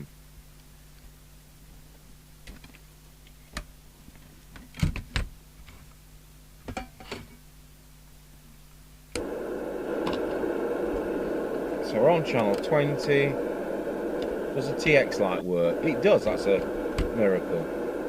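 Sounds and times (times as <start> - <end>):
faint mains hum: 0.0 - 18.0
radio receiver hiss: 9.1 - 18.0
radio switch and knob clicks: 10.0 - 10.4, 16.6 - 17.2.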